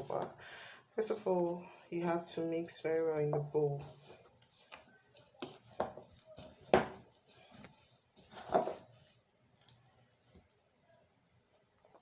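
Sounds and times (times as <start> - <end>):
spatula scraping a mixing bowl: 1.0 - 9.2.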